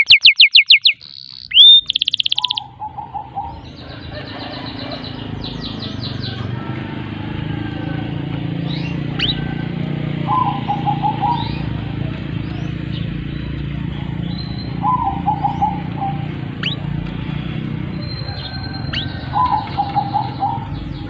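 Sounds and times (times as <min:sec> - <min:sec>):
rising bird chirps: 0:00.0 - 0:06.4, 0:08.6 - 0:09.5, 0:12.7 - 0:16.8.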